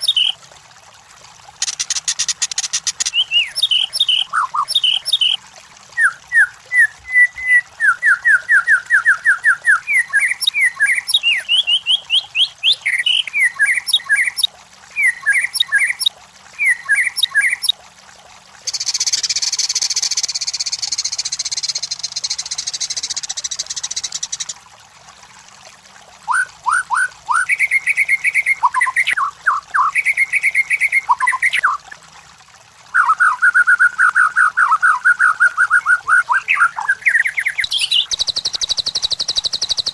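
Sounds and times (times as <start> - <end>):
shama singing whistled notes: 6.0 - 16.0, 33.0 - 39.9.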